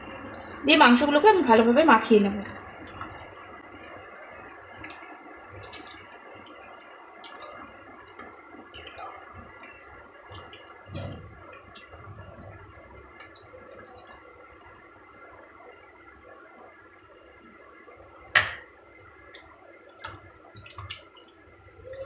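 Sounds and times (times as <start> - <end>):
hands squelching chicken in marinade: 2.4 - 14.6.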